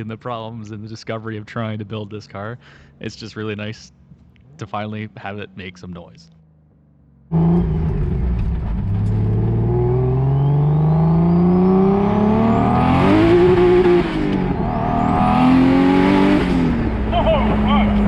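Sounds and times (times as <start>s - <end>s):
car engine accelerating: 3.9s - 18.0s
turbo whistle: 10.2s - 11.4s.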